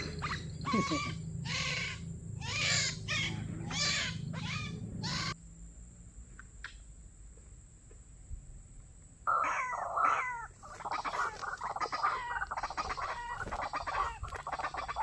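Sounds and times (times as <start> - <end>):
waterhen calls: 9.3 - 15.0.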